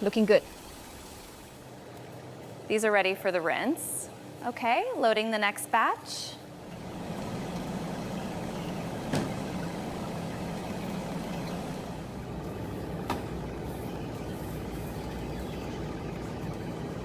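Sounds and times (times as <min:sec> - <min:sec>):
low machine hum: 0:06.2 - 0:17.0.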